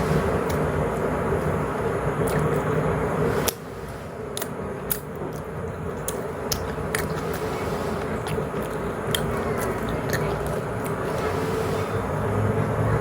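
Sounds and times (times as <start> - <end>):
low background rumble: 0.0 - 13.0
chewing mouth clicks and smacks: 2.2 - 2.8, 4.3 - 7.5, 8.2 - 11.0.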